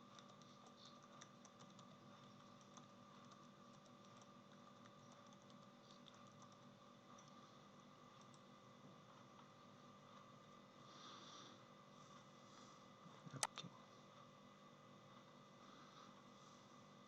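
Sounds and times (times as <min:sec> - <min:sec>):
keyboard typing: 0:00.0 - 0:07.4
steady low hum: 0:00.0 - 0:17.0.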